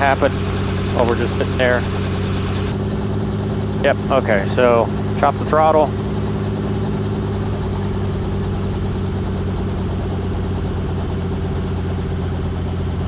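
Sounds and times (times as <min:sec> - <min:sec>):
helicopter engine idling hum: 0:00.0 - 0:13.0.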